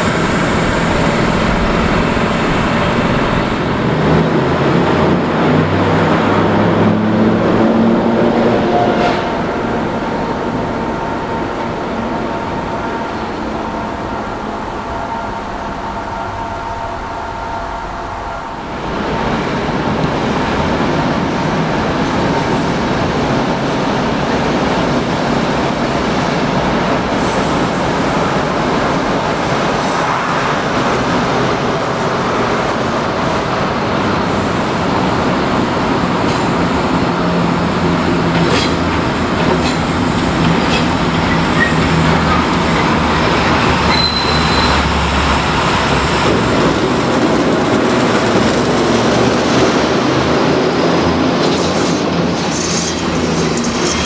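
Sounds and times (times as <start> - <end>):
train wheels rolling on rails: 0.0 - 54.0
high-pitched wheel squeal: 43.8 - 45.1.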